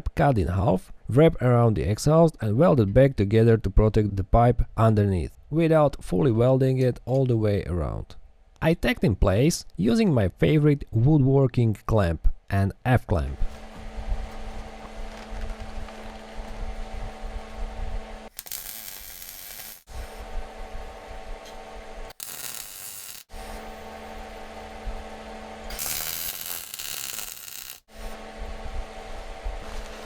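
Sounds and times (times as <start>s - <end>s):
welding hissing crackle: 18.3s - 20.2s, 22.1s - 23.8s, 25.7s - 27.9s
steady electrical hum: 18.3s - 29.9s.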